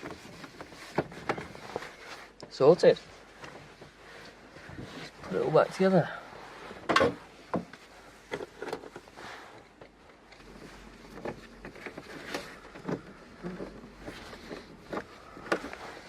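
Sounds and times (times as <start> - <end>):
car parts clicking and knocking: 6.8 - 9.1, 9.7 - 16.0.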